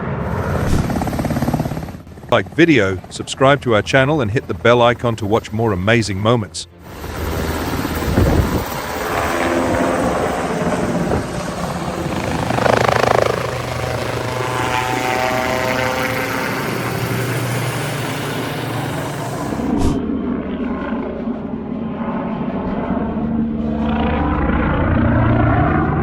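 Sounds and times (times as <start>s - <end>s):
helicopter rotor and engine: 0.0s - 26.0s.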